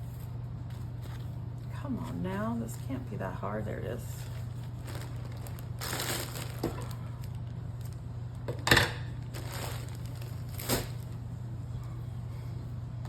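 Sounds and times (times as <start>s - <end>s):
steady low hum: 0.0s - 13.0s
paper rustling and knocks: 4.2s - 7.0s.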